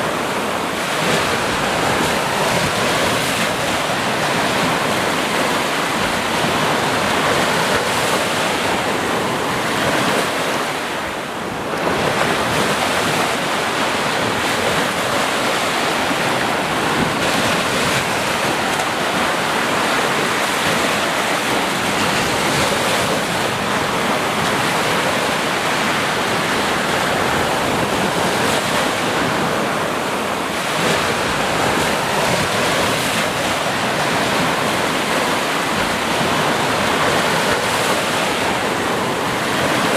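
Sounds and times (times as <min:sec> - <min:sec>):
sea waves washing in: 0:00.0 - 0:39.9.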